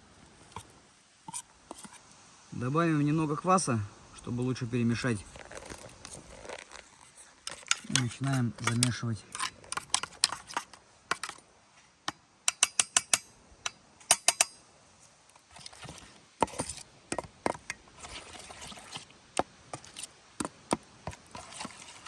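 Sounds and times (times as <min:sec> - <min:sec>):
utensil rasping stir: 0:01.3 - 0:02.0, 0:07.5 - 0:11.4, 0:15.5 - 0:19.1, 0:19.7 - 0:22.0
utensil clinking against a bowl: 0:07.5 - 0:11.4.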